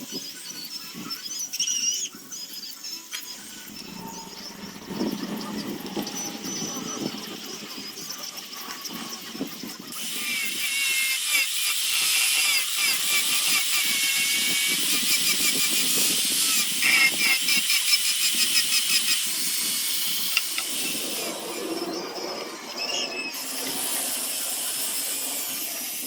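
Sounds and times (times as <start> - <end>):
power carving tool on wood: 9.9 - 26.0.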